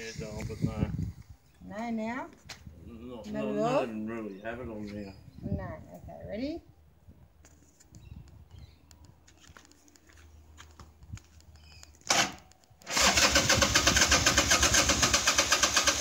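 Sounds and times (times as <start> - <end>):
engine cranking: 12.0 - 16.0
motorcycle engine running: 12.8 - 16.0.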